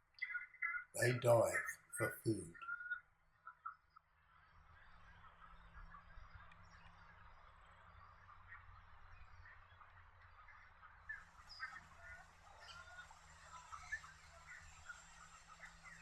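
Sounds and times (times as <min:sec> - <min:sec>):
birds chirping: 0:01.0 - 0:02.6.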